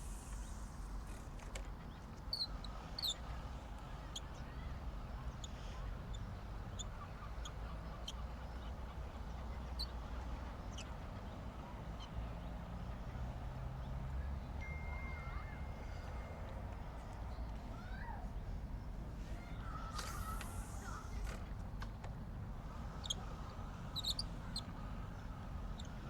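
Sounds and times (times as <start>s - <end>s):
high bird chirps: 14.6s - 16.5s.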